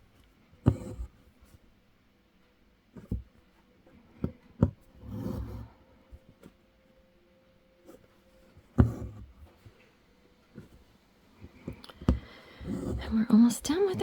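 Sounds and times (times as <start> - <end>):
needle popping through fabric: 0.6 - 1.1, 8.7 - 9.6, 11.4 - 14.0
thread rasping through fabric: 0.6 - 1.2, 4.2 - 6.5, 8.6 - 9.8, 11.4 - 14.0.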